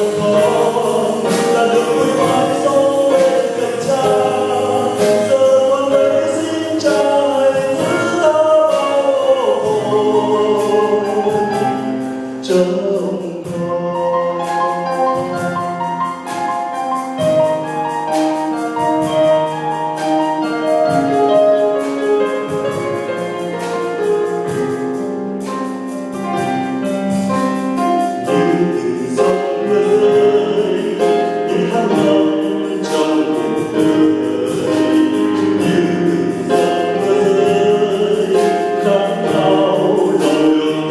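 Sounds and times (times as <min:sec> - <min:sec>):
song with singing voice: 0:00.0 - 0:15.8, 0:27.8 - 0:40.9.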